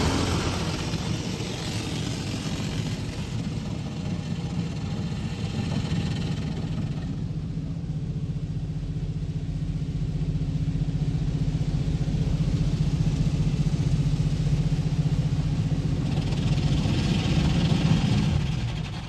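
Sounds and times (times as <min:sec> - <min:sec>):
hissing rush: 0:00.0 - 0:03.4.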